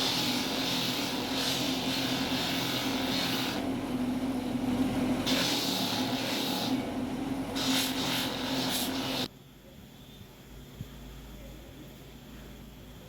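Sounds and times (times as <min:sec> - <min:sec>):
electric motor humming: 0:00.0 - 0:09.3.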